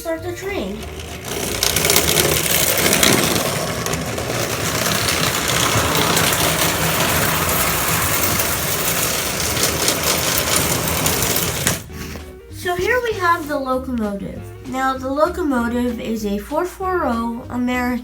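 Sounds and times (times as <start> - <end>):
toy train whirring and rattling: 0.0 - 12.0.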